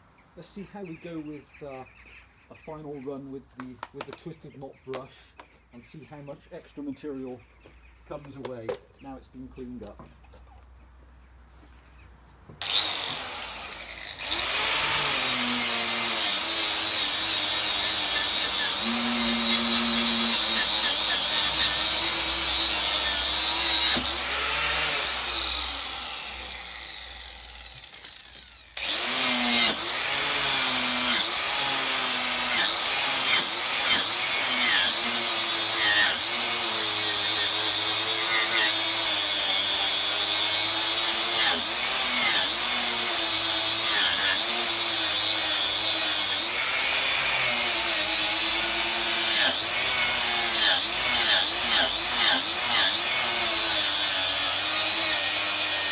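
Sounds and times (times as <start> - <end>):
wire brush grinding steel: 12.6 - 55.9.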